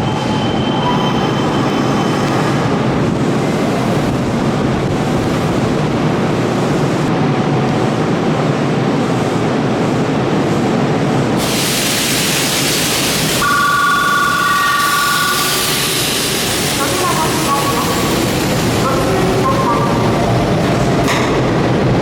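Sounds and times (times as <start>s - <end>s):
electric train rumbling: 0.0s - 22.0s
loud hiss: 11.4s - 18.8s
two-tone electronic chime: 13.4s - 15.6s.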